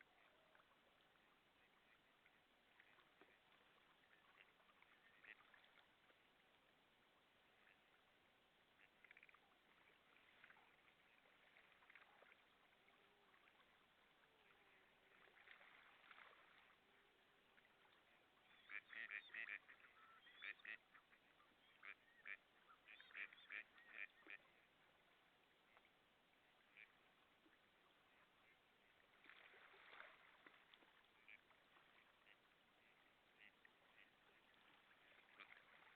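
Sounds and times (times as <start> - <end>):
waterfowl calling: 1.6 - 5.8, 17.8 - 24.7, 26.6 - 35.9.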